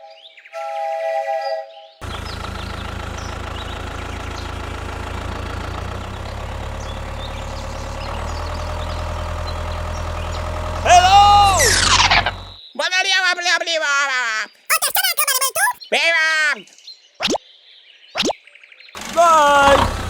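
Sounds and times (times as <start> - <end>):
small engine idling: 2.0 - 12.6, 19.0 - 20.0.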